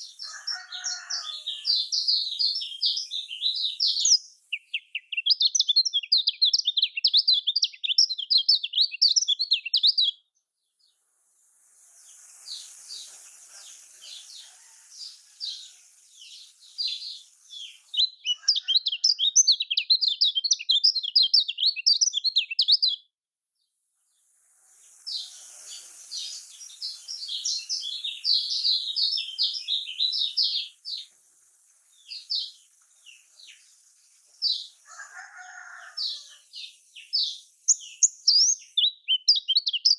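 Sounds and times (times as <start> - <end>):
steady hiss: 0.0 - 4.8, 10.8 - 18.0, 23.8 - 38.8
bird twittering song: 0.0 - 11.1, 11.8 - 23.1, 24.1 - 39.9.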